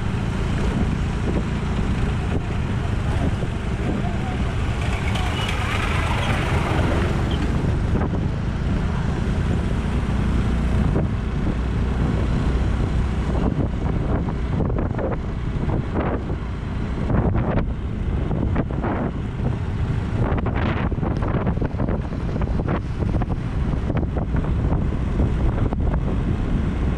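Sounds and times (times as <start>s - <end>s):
low vehicle rumble: 0.0s - 26.9s
wind rushing over microphone: 0.0s - 26.9s.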